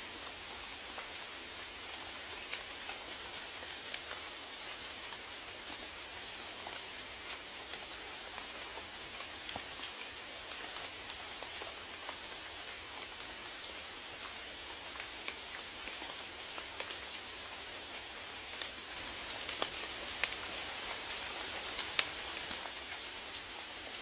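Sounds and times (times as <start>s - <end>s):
raindrops ticking on a surface: 0.0s - 24.0s
steady rain hissing: 0.0s - 24.0s.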